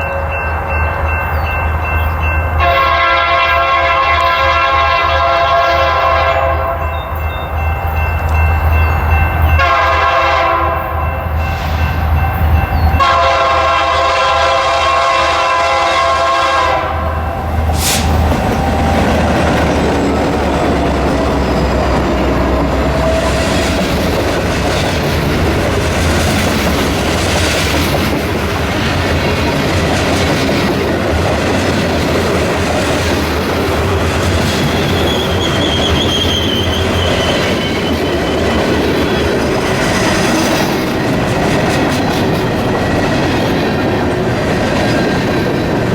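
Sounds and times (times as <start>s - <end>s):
train engine rumble: 0.0s - 45.9s
train horn blasts: 2.6s - 7.6s, 9.4s - 11.4s, 12.9s - 19.4s
wheels clacking over rail joints: 17.7s - 45.9s.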